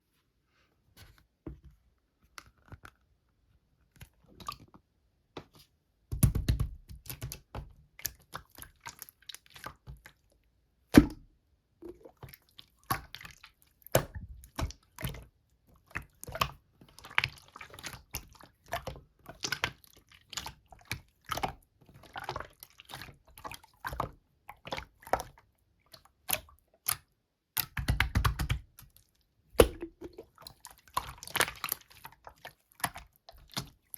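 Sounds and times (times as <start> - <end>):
slime squishing: 11.8 - 33.9
sticky clicks and wet pops: 27.6 - 29.0, 29.6 - 31.8.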